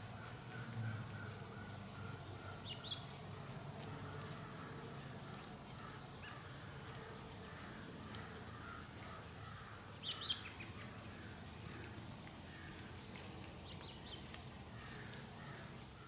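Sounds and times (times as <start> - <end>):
faint background noise: 0.0 - 16.0
bird chirping: 2.4 - 3.1, 10.0 - 10.8.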